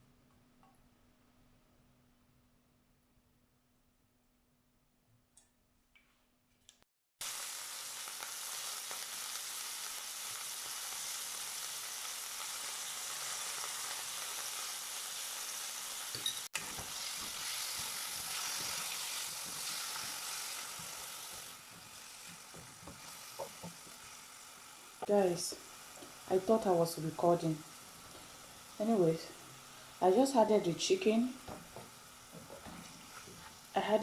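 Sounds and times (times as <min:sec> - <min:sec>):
chicken sizzling in hot oil: 0:07.2 - 0:34.0
light stirring knocks: 0:16.2 - 0:24.0, 0:31.4 - 0:33.6.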